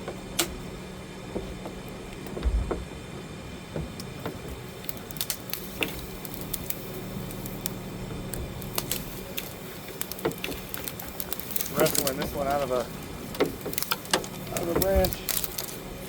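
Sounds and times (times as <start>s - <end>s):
low motor hum: 0.0s - 16.0s
dull thump: 1.3s - 4.6s.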